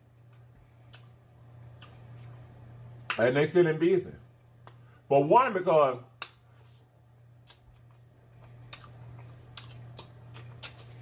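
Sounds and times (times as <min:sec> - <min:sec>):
low steady hum: 0:00.0 - 0:11.0
wet chewing sounds: 0:00.2 - 0:03.2, 0:06.2 - 0:11.0.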